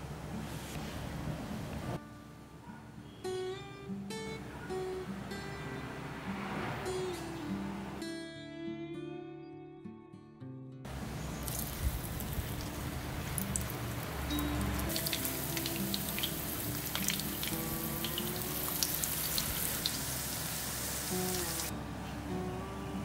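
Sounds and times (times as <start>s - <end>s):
guitar music: 2.0s - 23.0s
food sizzling in hot oil: 11.4s - 21.7s.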